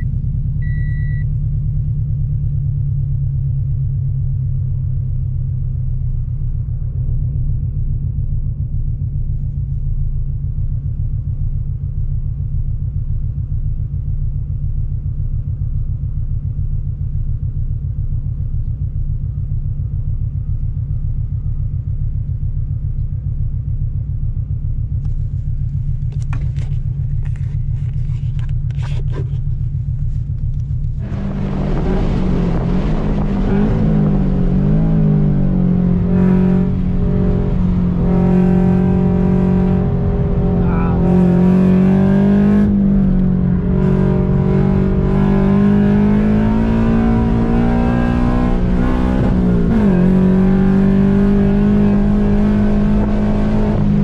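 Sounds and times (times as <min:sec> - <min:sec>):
car engine revving: 0:24.4 - 0:54.0.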